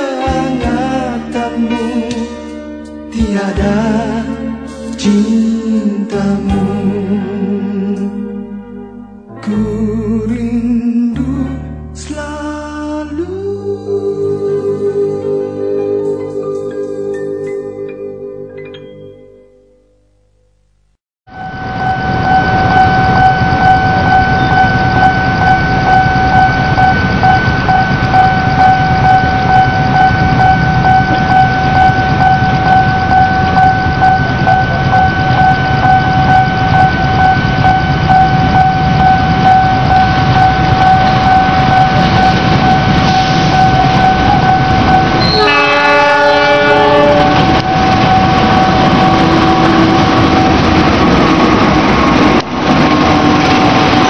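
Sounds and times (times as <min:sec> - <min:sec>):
diesel locomotive engine rumble: 0:21.3 - 0:54.0
pulsing ringing tone: 0:21.3 - 0:54.0
train horn blast: 0:37.6 - 0:51.1.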